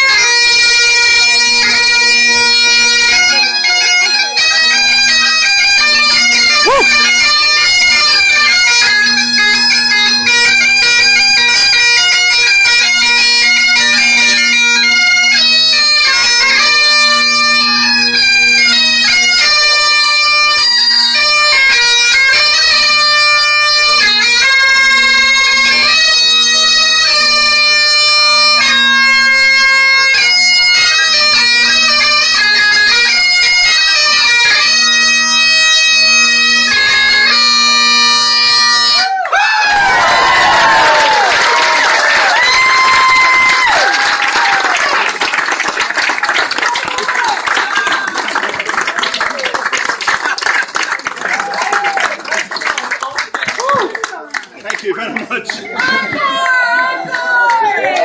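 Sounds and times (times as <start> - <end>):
bagpipes playing a quick melody: 0.0 - 39.1.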